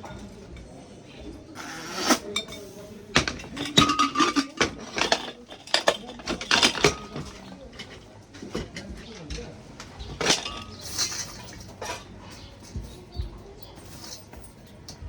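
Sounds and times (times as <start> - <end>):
small hard objects clinking: 2.0 - 13.0.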